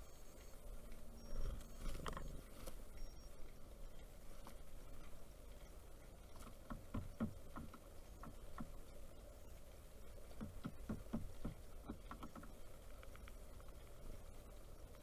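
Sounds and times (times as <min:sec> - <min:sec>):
woodpecker pecking: 0:06.3 - 0:09.2, 0:10.3 - 0:13.2.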